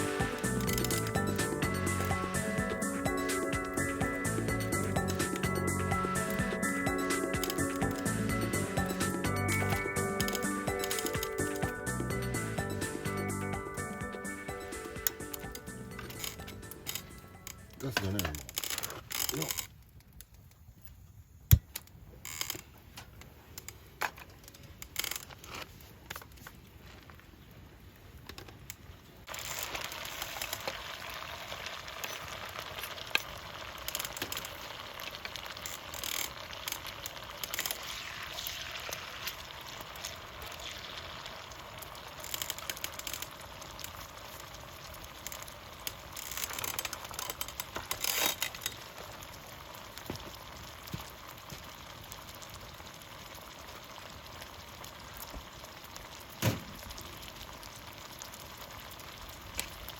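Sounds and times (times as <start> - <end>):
food sizzling in a hot pan: 29.3 - 46.2, 48.8 - 59.9.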